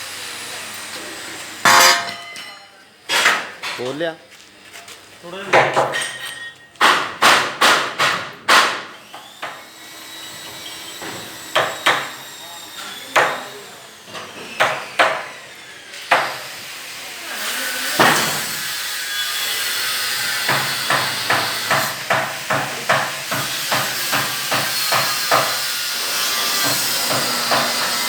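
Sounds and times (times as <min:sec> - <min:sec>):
hammer blows: 0:01.6 - 0:02.5.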